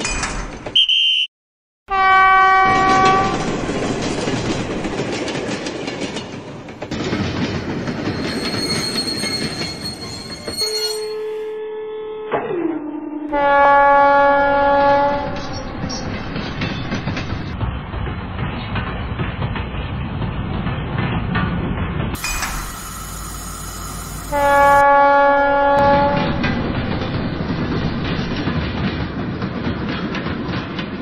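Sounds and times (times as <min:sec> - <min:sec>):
train horn blast: 0:01.9 - 0:03.5, 0:11.0 - 0:15.8, 0:24.2 - 0:26.6
train rumbling and clacking on rails: 0:02.0 - 0:11.6, 0:12.3 - 0:31.0
thin high squeal: 0:08.2 - 0:11.6, 0:22.2 - 0:24.8.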